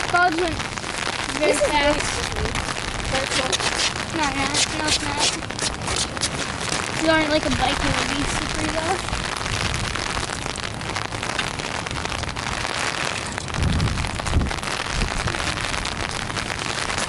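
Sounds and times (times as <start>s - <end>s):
rain on an umbrella: 0.0s - 17.0s
low rumble: 13.4s - 16.6s.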